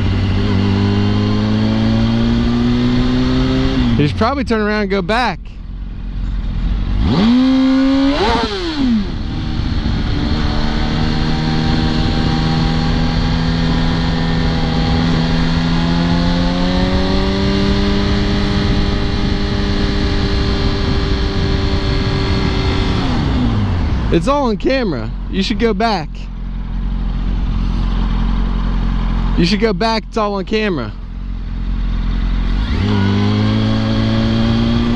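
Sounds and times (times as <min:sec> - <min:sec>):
motorcycle engine revving: 0:00.0 - 0:34.9
wind rush: 0:09.3 - 0:24.8.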